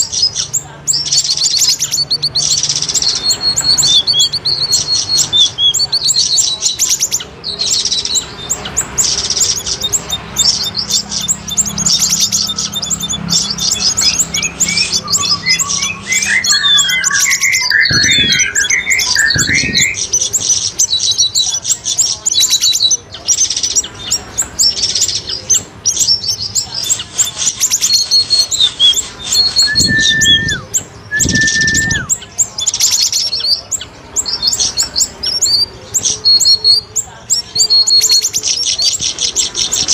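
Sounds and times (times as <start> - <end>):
songbirds chirping and twittering: 0.0 - 39.9
short level whistles: 28.3 - 32.1.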